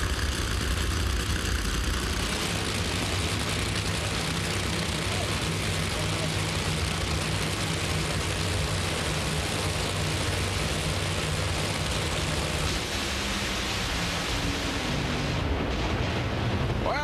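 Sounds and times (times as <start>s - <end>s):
race car engines idling: 0.0s - 17.0s.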